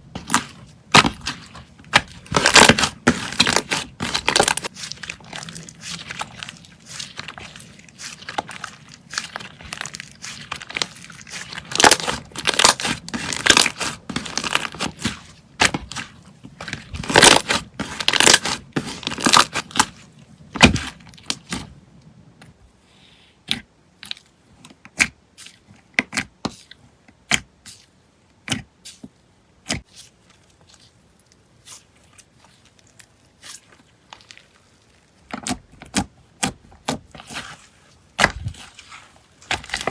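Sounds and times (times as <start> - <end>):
slime crackling and popping: 0.2 - 20.0.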